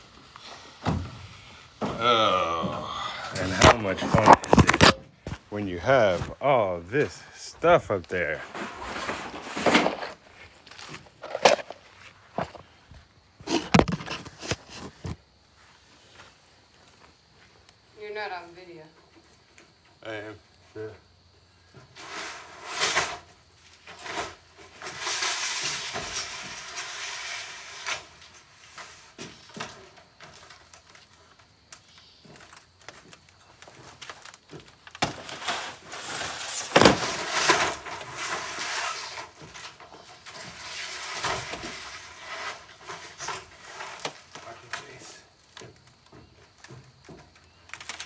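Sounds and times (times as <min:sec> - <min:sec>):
tin sheets scraping and clattering: 0:03.2 - 0:06.4, 0:07.1 - 0:11.8, 0:21.8 - 0:31.5, 0:32.2 - 0:48.0.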